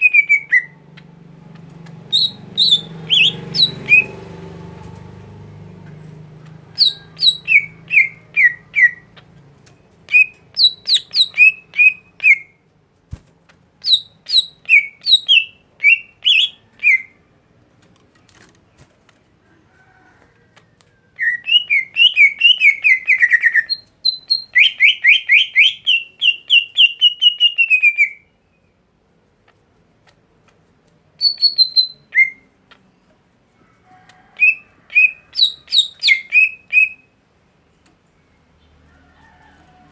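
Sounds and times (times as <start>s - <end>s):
songbird whistling: 0.0s - 0.8s, 2.1s - 4.3s, 6.8s - 9.1s, 10.1s - 12.6s, 13.8s - 17.2s, 21.2s - 28.7s, 31.2s - 32.5s, 34.4s - 37.2s.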